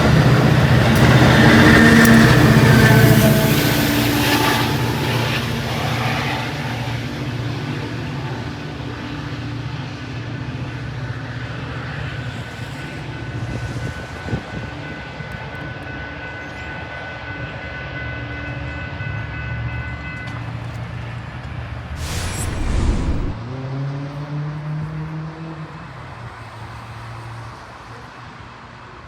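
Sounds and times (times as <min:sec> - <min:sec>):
diesel locomotive rumbling: 0:00.0 - 0:07.5.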